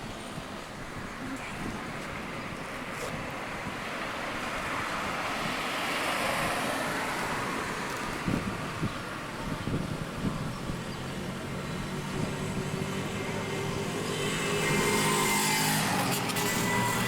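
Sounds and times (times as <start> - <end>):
car passing by: 2.8 - 9.8, 10.8 - 17.0.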